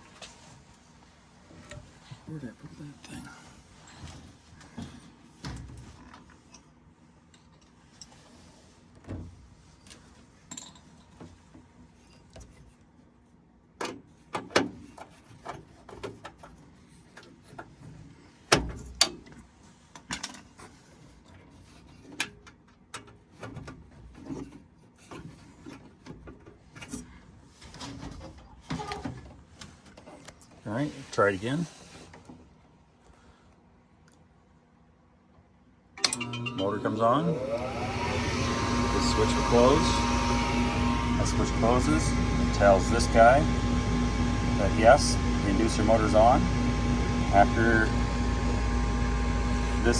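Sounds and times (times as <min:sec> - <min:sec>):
faint steady hum: 0:32.2 - 0:49.9.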